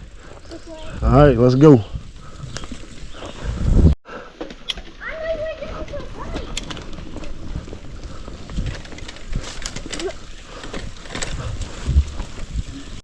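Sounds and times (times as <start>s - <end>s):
wind rumbling on microphone: 0.0s - 4.0s, 5.2s - 13.0s
bicycle clicks and rattles: 4.4s - 13.0s.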